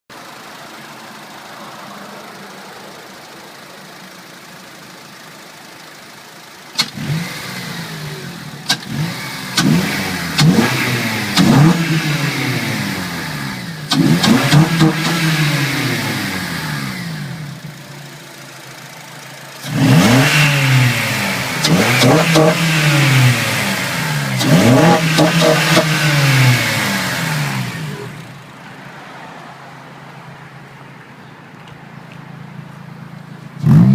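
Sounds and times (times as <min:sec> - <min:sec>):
car engine idling and revving: 0:00.1 - 0:33.9
exhaust cracks: 0:08.4 - 0:17.7, 0:19.6 - 0:28.7.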